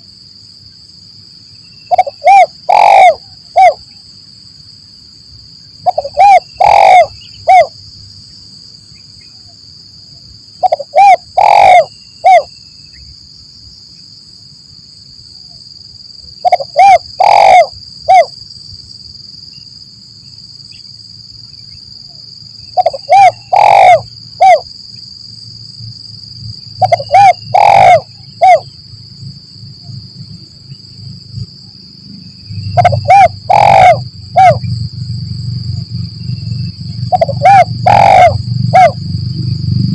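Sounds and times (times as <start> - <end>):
steady high-pitched whine: 0.0 - 39.9
dove cooing: 1.9 - 3.9, 5.8 - 7.7, 10.6 - 12.5, 16.4 - 18.3, 22.8 - 24.6, 26.8 - 28.7, 32.7 - 34.7, 37.0 - 39.0.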